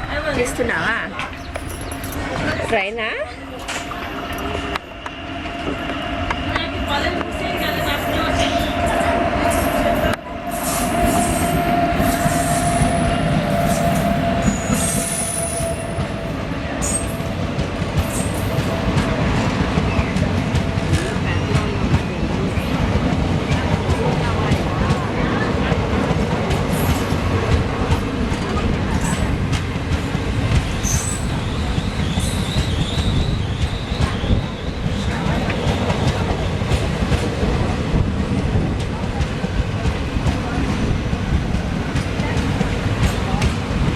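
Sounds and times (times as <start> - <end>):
train rumbling on rails: 0.0 - 43.9
high wavering squeal: 6.9 - 17.2.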